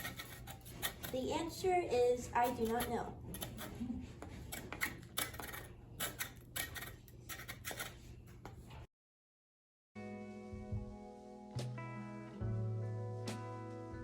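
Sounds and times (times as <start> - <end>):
hand tool clicking and scraping wood: 0.0 - 1.2, 2.4 - 8.0.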